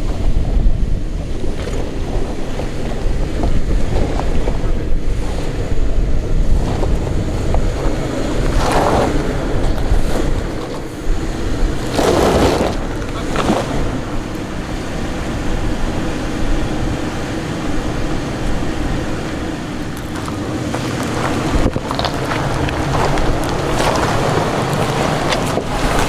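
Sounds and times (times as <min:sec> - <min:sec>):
truck engine running at low speed: 0:00.0 - 0:26.0
wind buffeting microphone: 0:00.0 - 0:26.0.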